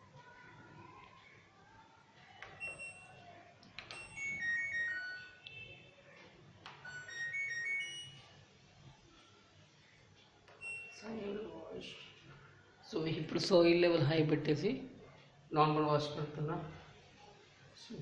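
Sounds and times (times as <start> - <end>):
electronic beeped jingles: 6.8 - 8.3.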